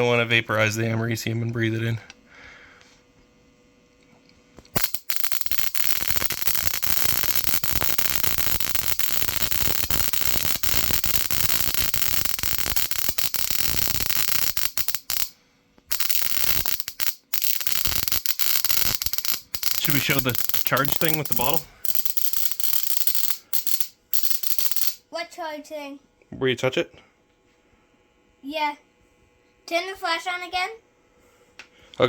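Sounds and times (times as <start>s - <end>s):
electric sparks crackling: 4.6s - 15.3s, 15.9s - 25.0s.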